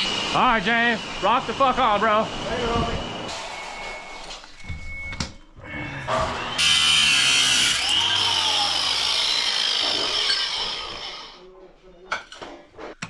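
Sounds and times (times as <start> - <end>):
handheld power tool running: 6.1 - 11.4.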